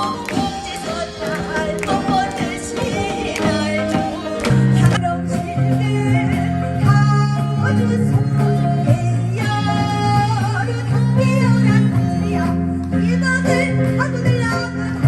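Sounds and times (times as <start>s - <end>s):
vibrato singing voice: 0.0s - 15.0s.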